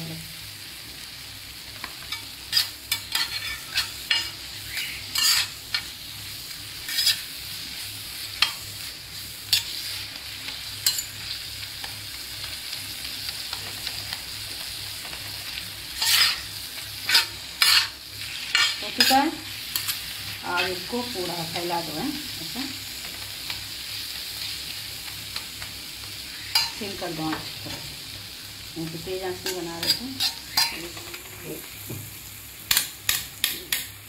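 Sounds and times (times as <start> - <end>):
spices sizzling in oil: 0.0 - 34.0
spatula scraping a pan: 2.1 - 6.0, 6.8 - 8.7, 15.9 - 20.9, 26.3 - 26.8, 29.4 - 31.4.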